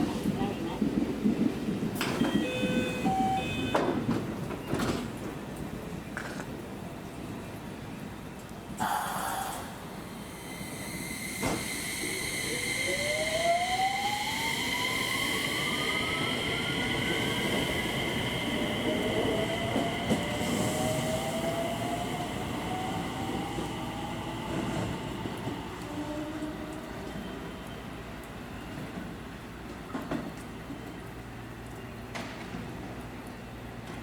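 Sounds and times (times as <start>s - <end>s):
wheels rumbling on rail: 0.0s - 8.8s.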